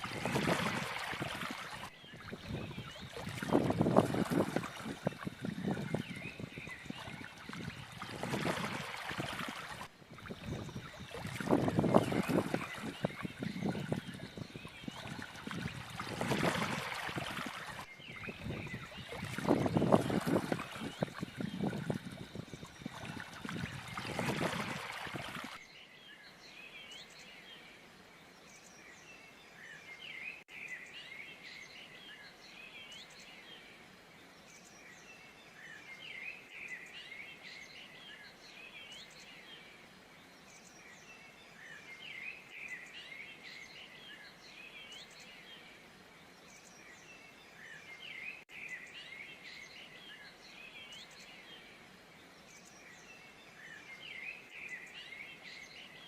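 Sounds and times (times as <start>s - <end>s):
small birds chirping: 0.0s - 27.2s.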